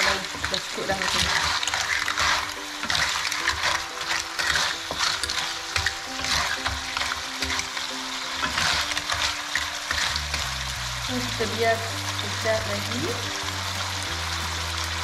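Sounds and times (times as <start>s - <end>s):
stirring scraping and clinking: 0.0s - 12.7s
clams sizzling in a pan: 0.0s - 15.0s.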